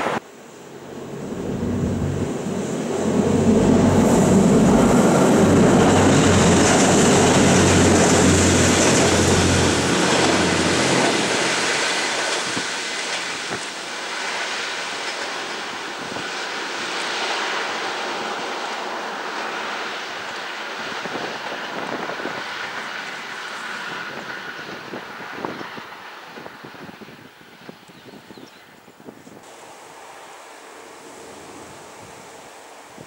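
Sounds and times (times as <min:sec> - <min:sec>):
train wheels rumbling: 0:00.0 - 0:16.3
diesel railcar engine drone: 0:00.0 - 0:28.0, 0:29.5 - 0:33.0.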